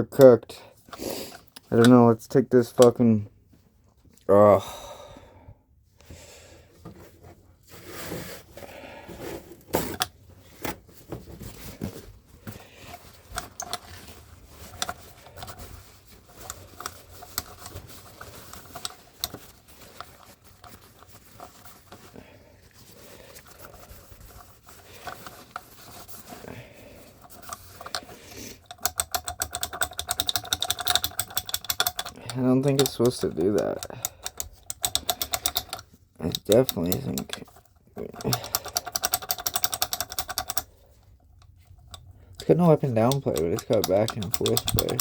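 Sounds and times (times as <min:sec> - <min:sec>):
metal engine parts clicking: 0:12.9 - 0:22.1, 0:27.1 - 0:45.0
fast run of clicks: 0:28.7 - 0:40.7, 0:43.0 - 0:45.0.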